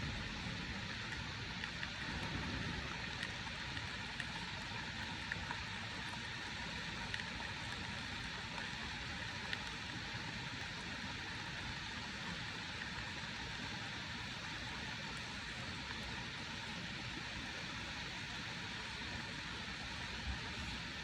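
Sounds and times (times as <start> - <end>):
raindrops ticking: 0.0 - 8.7
steady rain: 0.0 - 21.0.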